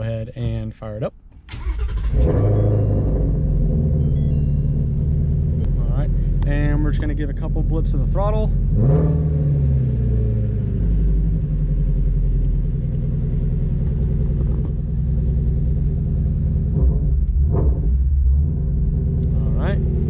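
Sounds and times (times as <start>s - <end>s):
car engine idling: 0.0s - 8.8s, 9.5s - 20.0s
engine revs settling: 1.3s - 5.6s.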